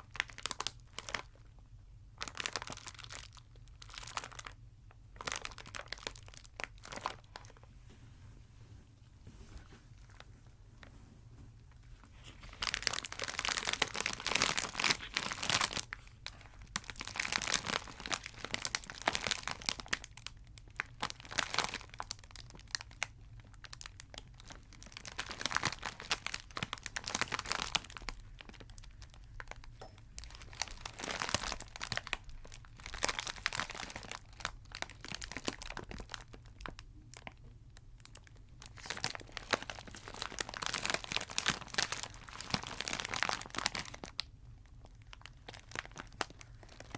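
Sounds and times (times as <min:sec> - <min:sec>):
wrappers crinkling: 0:00.0 - 0:01.5, 0:02.2 - 0:07.7, 0:09.4 - 0:37.4, 0:38.0 - 0:46.9.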